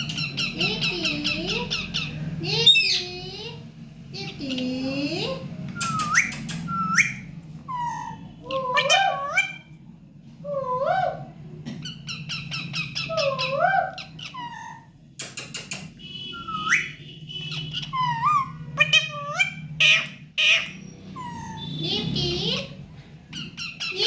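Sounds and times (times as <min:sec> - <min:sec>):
parrot squawks: 0:00.0 - 0:03.1, 0:05.9 - 0:09.8, 0:10.5 - 0:14.9, 0:15.9 - 0:24.0
parrot whistling: 0:05.7 - 0:09.7, 0:16.3 - 0:21.8.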